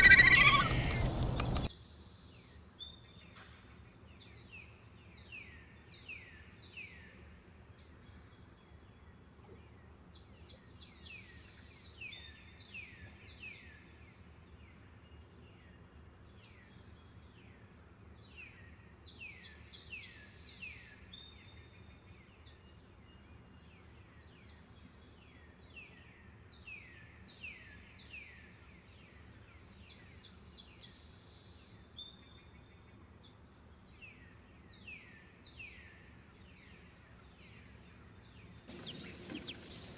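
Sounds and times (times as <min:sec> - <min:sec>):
birds singing: 0:00.0 - 0:01.7, 0:38.7 - 0:39.9
river flowing: 0:00.0 - 0:01.7, 0:38.7 - 0:39.9
high insect drone: 0:38.7 - 0:39.9.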